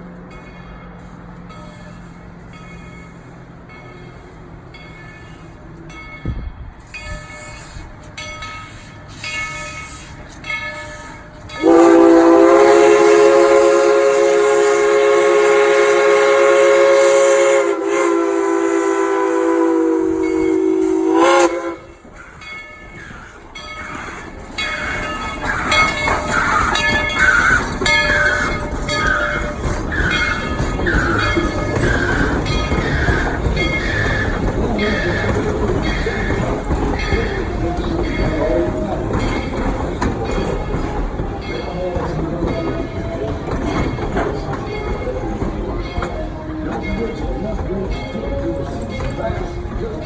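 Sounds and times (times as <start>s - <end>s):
train running sounds: 0.0s - 50.0s
steam locomotive whistle chord: 10.8s - 22.4s, 23.0s - 47.5s.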